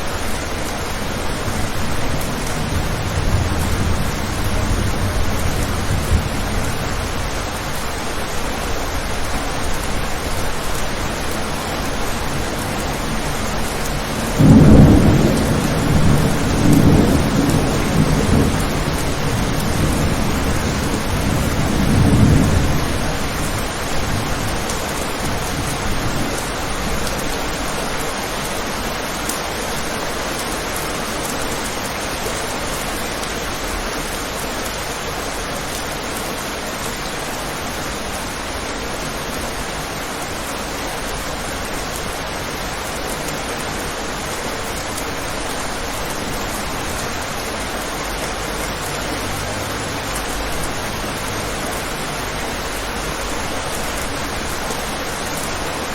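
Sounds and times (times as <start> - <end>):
low thunder rumble: 0.0 - 7.8, 11.5 - 27.0
heavy rain: 0.0 - 55.9.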